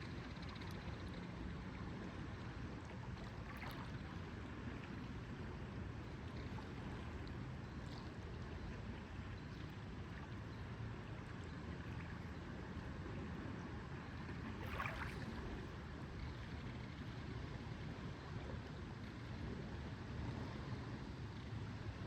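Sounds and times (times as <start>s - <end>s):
low rumble of water: 0.0s - 22.0s
faint water lapping: 1.4s - 19.3s
water splash: 14.6s - 15.4s.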